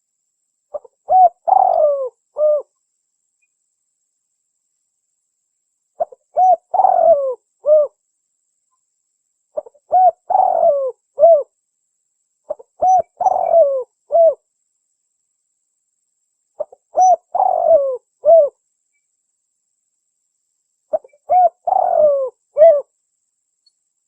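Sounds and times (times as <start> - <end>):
dove cooing: 0.7 - 2.7, 6.0 - 8.0, 9.6 - 11.5, 12.5 - 14.4, 16.6 - 18.6, 20.9 - 22.9.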